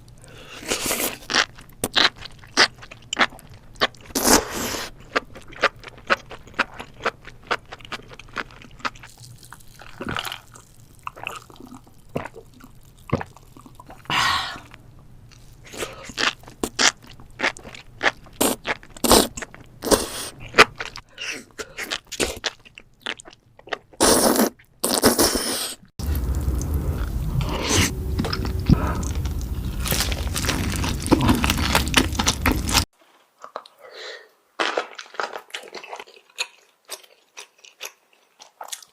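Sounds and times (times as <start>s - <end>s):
chewing crunchy food: 0.4s - 25.1s, 26.0s - 33.8s, 34.6s - 38.9s
steady low hum: 26.0s - 32.9s.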